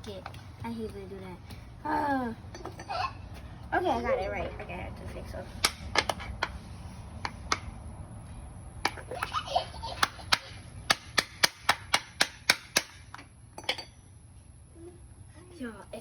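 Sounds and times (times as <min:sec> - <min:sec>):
hammer striking nail into wood: 0:10.0 - 0:13.2.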